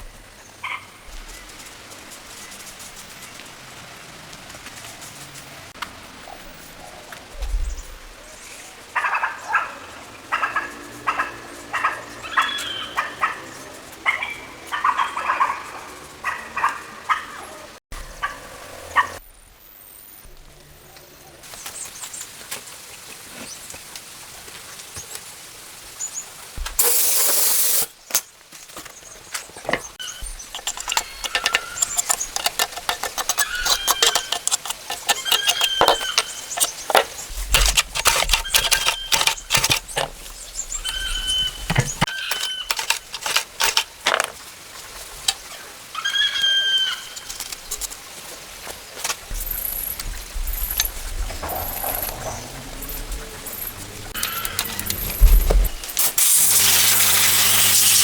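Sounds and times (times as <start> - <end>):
short hiss: 26.7 - 27.9
sharp clicks and knocks: 29.5 - 44.4
short level squeaks: 29.7 - 44.3, 50.5 - 55.8.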